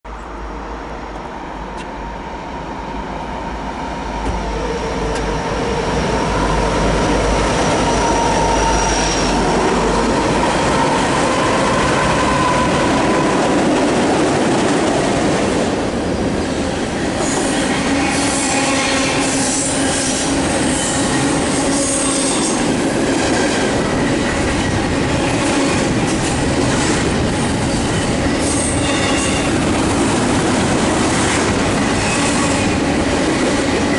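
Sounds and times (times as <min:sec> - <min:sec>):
high-pitched wheel squeal: 0:07.5 - 0:09.8.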